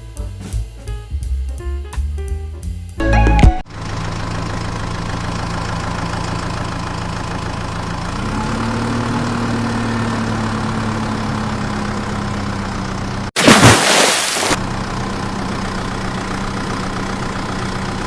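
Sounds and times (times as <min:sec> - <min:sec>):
engine idling: 0:03.7 - 0:13.3, 0:14.6 - 0:18.0.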